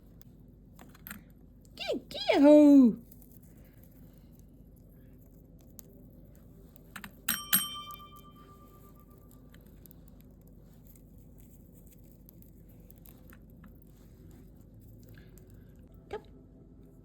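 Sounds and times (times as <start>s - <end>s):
small metal bell ringing: 7.3s - 9.2s.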